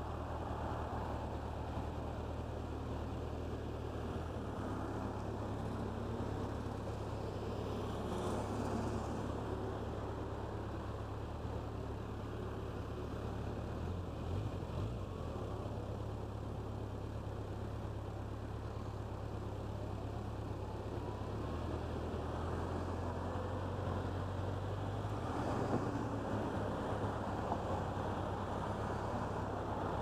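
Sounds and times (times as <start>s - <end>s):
cars passing: 0.0s - 16.0s, 18.6s - 30.0s.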